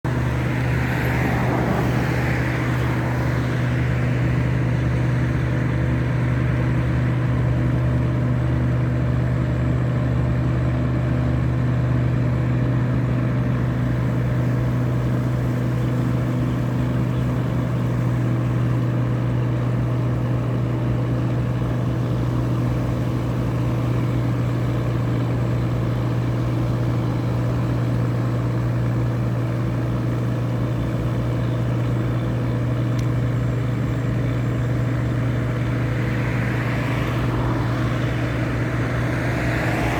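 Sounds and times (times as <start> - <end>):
boat diesel engine drone: 0.0 - 39.9.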